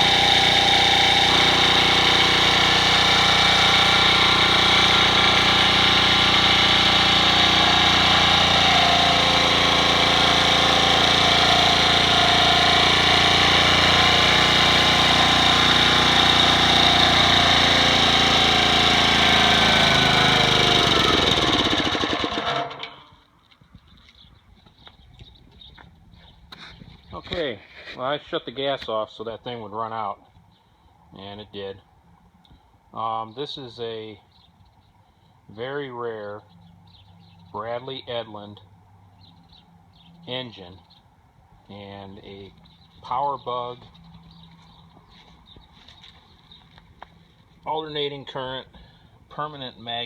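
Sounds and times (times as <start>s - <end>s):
generator engine running: 0.0s - 23.2s.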